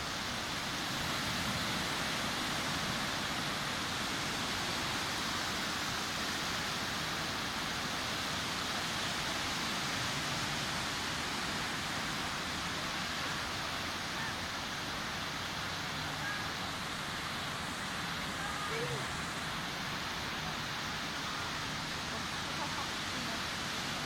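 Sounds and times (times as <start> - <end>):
waves breaking on a beach: 0.0 - 24.0.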